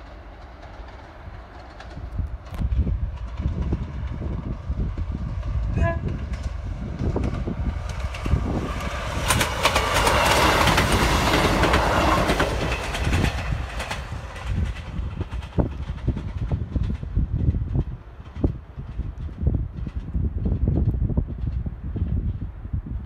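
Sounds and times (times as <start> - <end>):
wheels clicking over rail joints: 0.0 - 22.3
train passing at speed: 0.0 - 23.0
train horn blast: 5.6 - 6.3.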